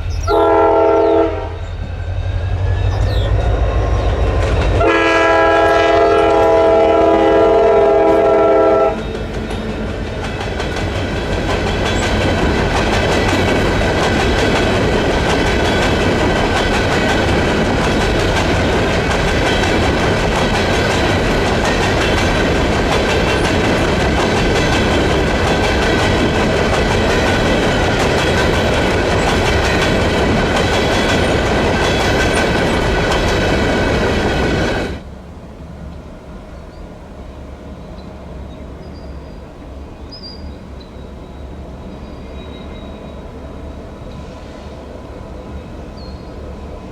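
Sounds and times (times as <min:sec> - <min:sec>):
train rolling past: 0:00.0 - 0:46.9
locomotive horn chord: 0:00.3 - 0:01.6, 0:04.8 - 0:09.0.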